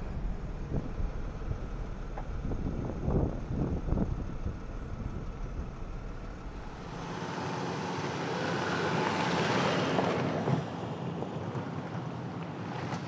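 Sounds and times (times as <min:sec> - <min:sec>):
low rumbling: 0:00.0 - 0:09.1
rushing wind: 0:00.0 - 0:12.1.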